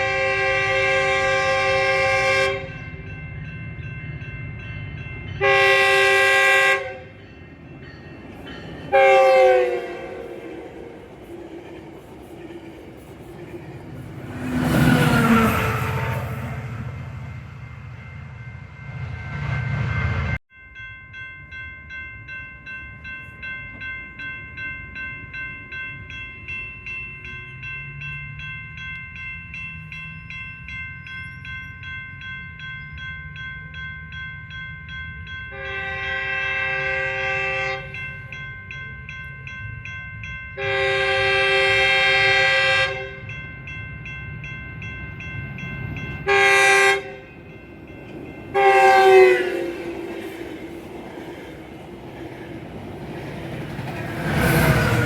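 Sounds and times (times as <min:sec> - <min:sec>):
locomotive air horn blasts: 0:00.0 - 0:02.8, 0:05.4 - 0:07.2, 0:08.9 - 0:10.6, 0:35.5 - 0:38.0, 0:40.6 - 0:43.2, 0:46.2 - 0:47.3, 0:48.5 - 0:50.0
train rumbling: 0:00.0 - 0:20.4, 0:23.0 - 0:55.0
crossing bell ringing: 0:00.0 - 0:55.0.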